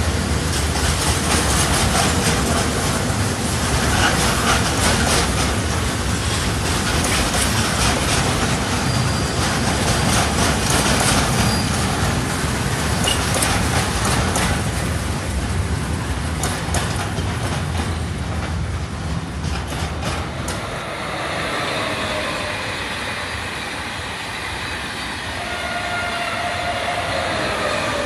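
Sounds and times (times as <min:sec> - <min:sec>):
train rumbling past: 0:00.0 - 0:28.0
wheels clicking over rail joints: 0:00.4 - 0:20.7.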